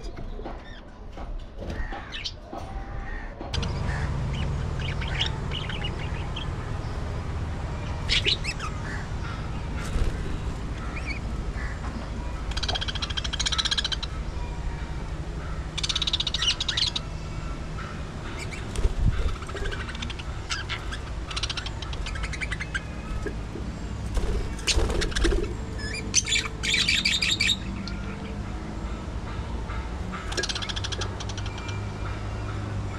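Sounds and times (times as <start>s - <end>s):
steady low hum: 3.4s - 32.9s
budgerigars chattering: 3.6s - 6.7s, 7.9s - 11.8s, 12.4s - 14.2s, 15.8s - 17.1s, 18.2s - 28.0s, 30.3s - 31.9s.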